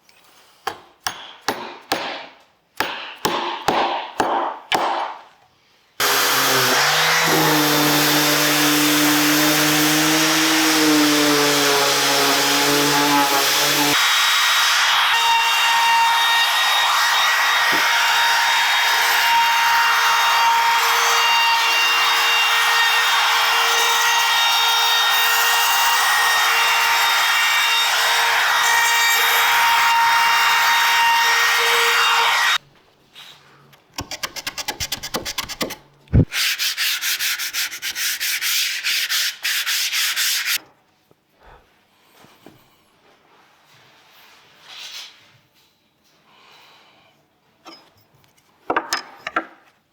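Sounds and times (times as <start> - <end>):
electric sander on wood: 6.0 - 32.6.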